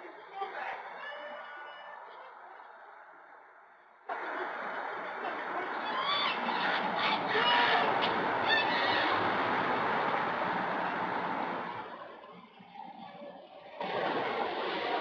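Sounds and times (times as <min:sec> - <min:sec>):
vehicle passing: 0:04.1 - 0:15.0
high-pitched honking calls: 0:05.8 - 0:11.1.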